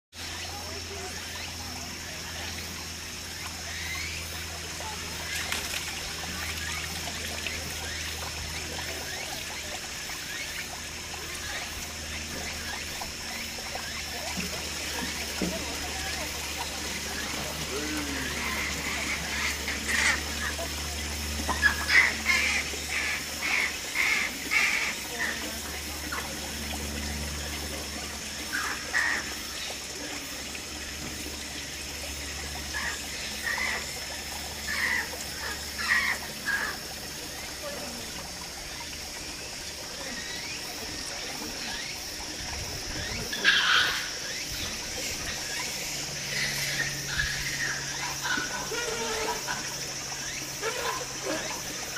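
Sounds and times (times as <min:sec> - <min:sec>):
trickle of running water: 0:00.1 - 0:51.9.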